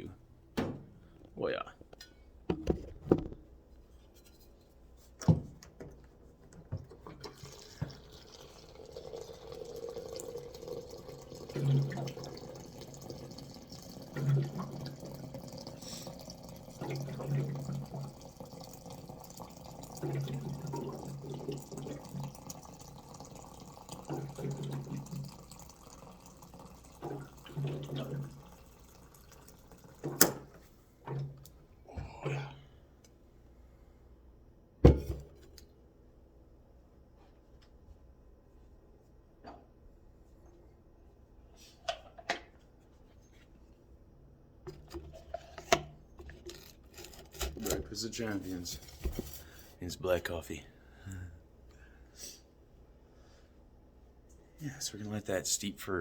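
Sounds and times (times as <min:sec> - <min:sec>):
water pouring from a jug: 0:07.0 - 0:30.5.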